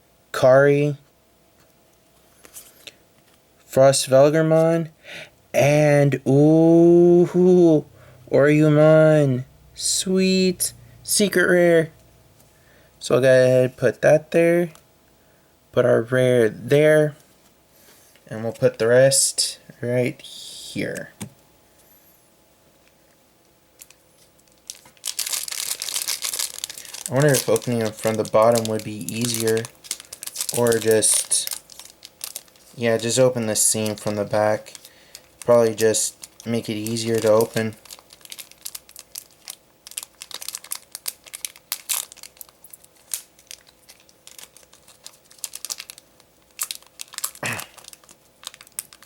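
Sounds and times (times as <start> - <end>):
foil wrapper crinkling and tearing: 23.8 - 49.0.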